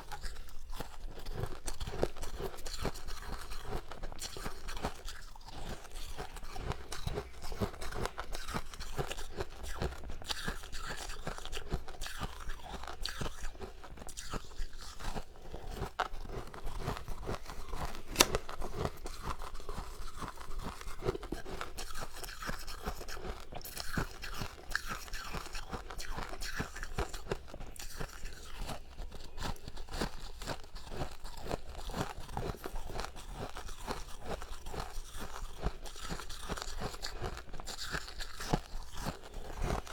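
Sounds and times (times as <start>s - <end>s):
chewing ice crunches: 0.0s - 39.9s.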